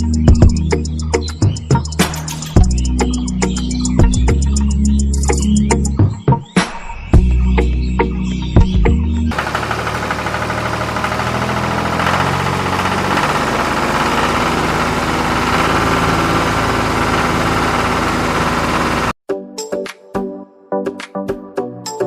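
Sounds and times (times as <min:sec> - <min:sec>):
small engine running: 0:09.3 - 0:19.2.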